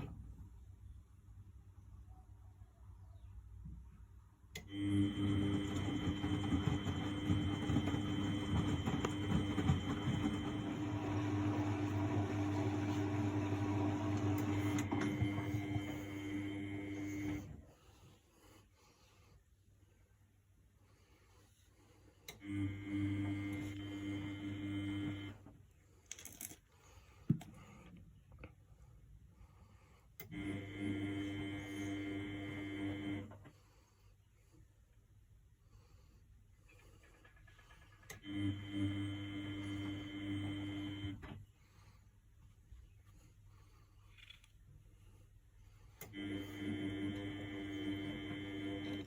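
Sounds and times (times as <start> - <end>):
washing machine hum: 0.0 - 0.6, 4.5 - 18.6, 22.2 - 25.8, 27.0 - 33.8, 34.7 - 43.9, 44.6 - 49.0
washing machine drum motor running: 4.7 - 17.6, 46.1 - 49.0.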